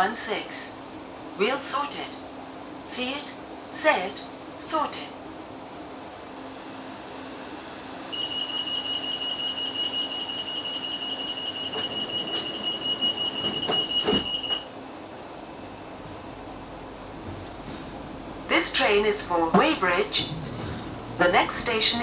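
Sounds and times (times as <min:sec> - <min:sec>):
train door warning beeping: 0:07.9 - 0:14.8, 0:15.4 - 0:22.0
knocks: 0:11.7 - 0:14.6, 0:17.2 - 0:22.0.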